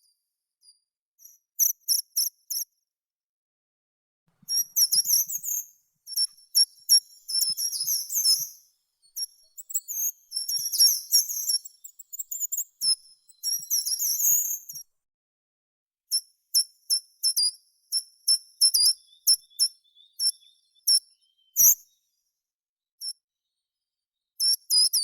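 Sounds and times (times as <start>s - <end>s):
songbird twittering: 18.8s - 21.7s.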